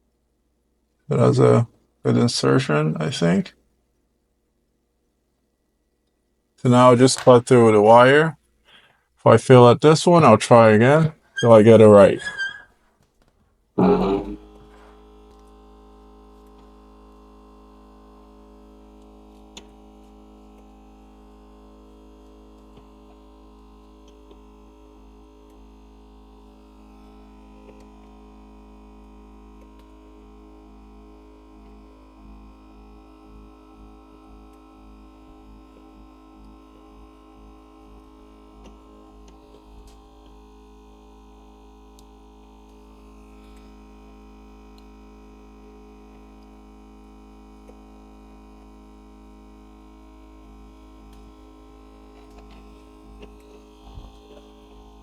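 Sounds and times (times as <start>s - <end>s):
machine electrical hum: 13.8s - 55.0s.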